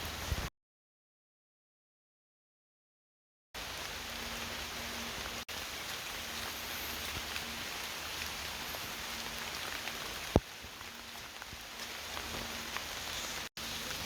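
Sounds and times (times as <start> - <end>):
rain pattering: 3.6 - 14.0.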